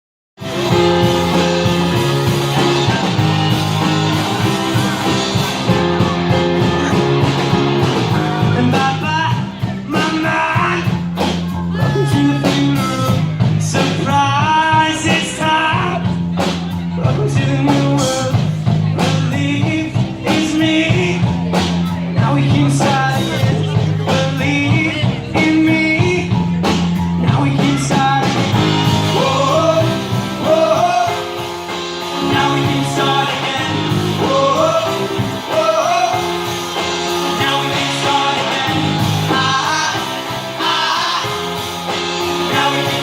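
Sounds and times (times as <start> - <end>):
person singing: 0.4 - 43.0
rock band playing: 0.4 - 43.0.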